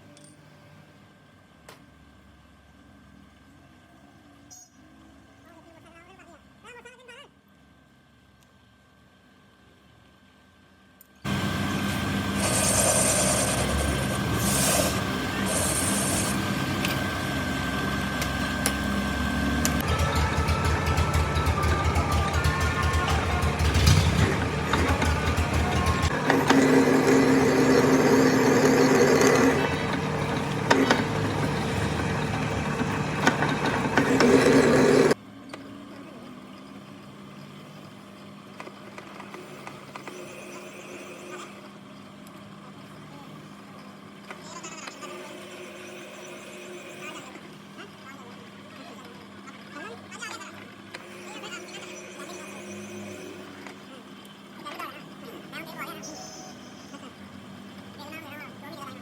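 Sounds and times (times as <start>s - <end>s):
faint hum with light ticks: 8.3s - 8.6s
metal lathe whining: 11.3s - 35.2s
fast pulsing rattle: 19.8s - 35.2s.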